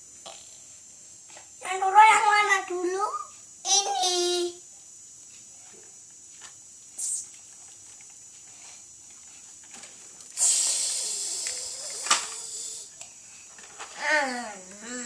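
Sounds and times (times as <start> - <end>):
high hissing: 6.9 - 7.4, 10.3 - 15.0.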